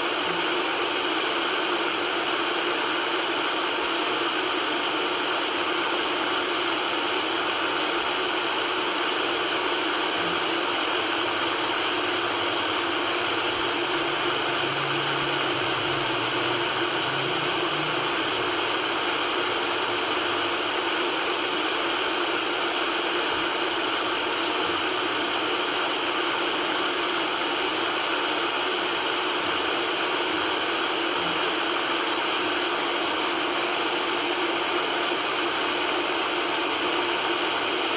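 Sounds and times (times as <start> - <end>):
steady white noise hiss: 10.2 - 37.5.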